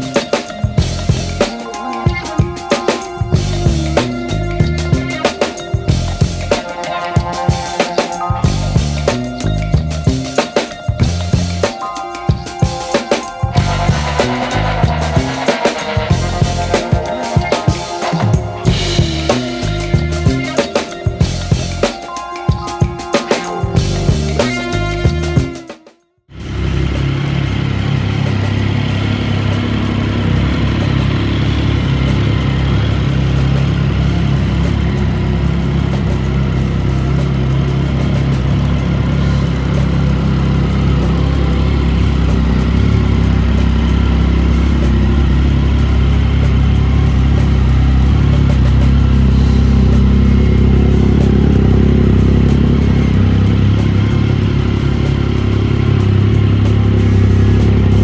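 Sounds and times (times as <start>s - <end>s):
motorcycle engine running: 0.0s - 1.5s, 3.3s - 5.2s, 5.8s - 6.6s, 8.4s - 10.4s, 11.0s - 11.7s, 13.5s - 17.0s, 18.1s - 20.6s, 21.2s - 21.9s, 26.3s - 58.0s.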